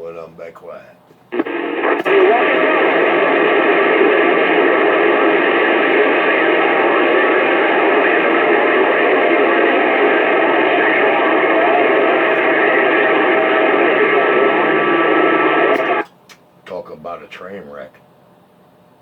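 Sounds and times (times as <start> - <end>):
radio static: 1.3 - 16.0.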